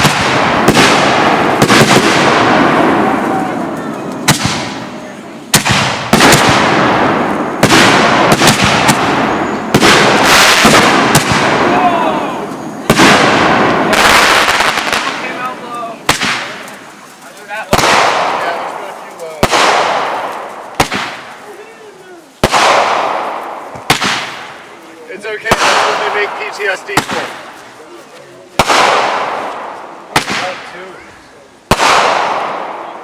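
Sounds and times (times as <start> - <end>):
firework mortar bangs: 0.0 - 21.6, 22.4 - 27.7, 28.5 - 31.0, 31.7 - 33.0
hissing crackling shell bursts: 5.5 - 21.4.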